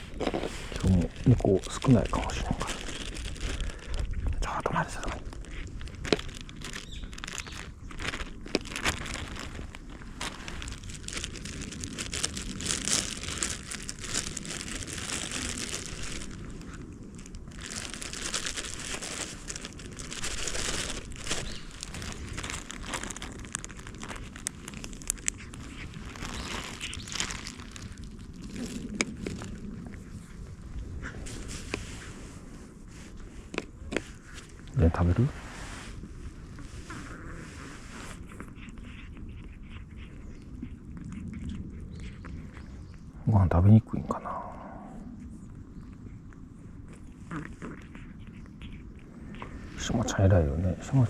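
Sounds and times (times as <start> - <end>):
plastic packaging crinkling: 0.0 - 30.0.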